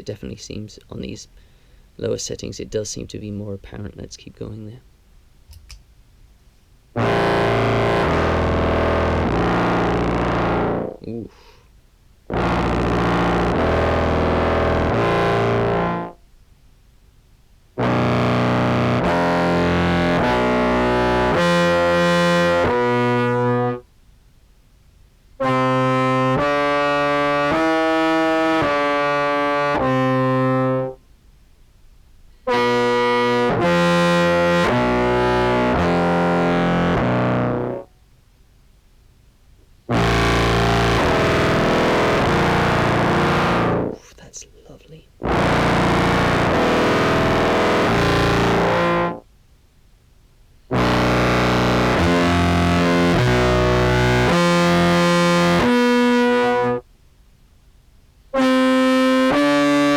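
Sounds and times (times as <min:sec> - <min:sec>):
distorted buzzy clarinet notes: 0:06.9 - 0:11.4, 0:12.3 - 0:16.2, 0:17.8 - 0:23.9, 0:25.4 - 0:31.0, 0:32.3 - 0:37.9, 0:39.9 - 0:44.0, 0:45.2 - 0:49.3, 0:50.7 - 0:56.9, 0:58.3 - 0:59.9.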